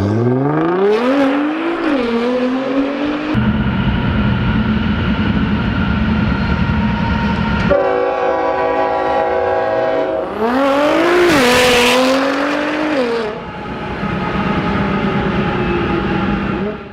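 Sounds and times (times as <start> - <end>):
sports car engine revving: 0.0 - 3.8, 10.2 - 13.4.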